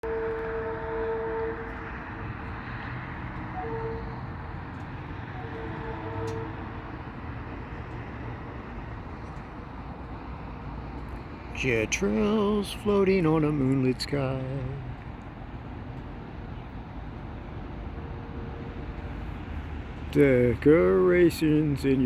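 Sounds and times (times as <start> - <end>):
train horn blasts: 0.0 - 7.1, 17.9 - 19.3
train rumbling past: 0.0 - 22.0.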